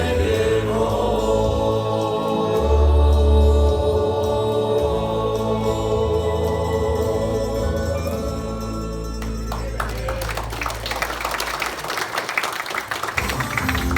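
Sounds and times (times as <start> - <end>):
vocal quartet singing with music: 0.0 - 13.9
crowd clapping: 9.2 - 13.9.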